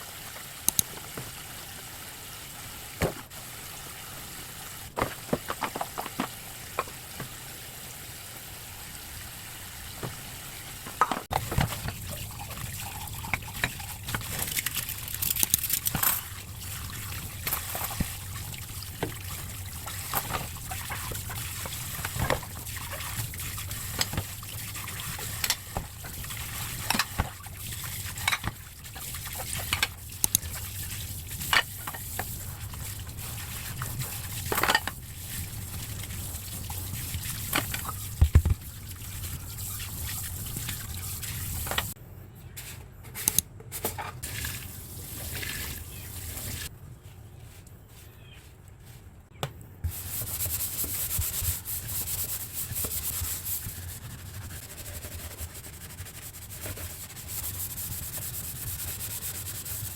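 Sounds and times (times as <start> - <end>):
water trickling: 8.8 - 42.0
utensils and dishes clinking: 10.9 - 16.5, 28.1 - 28.6, 33.9 - 35.0.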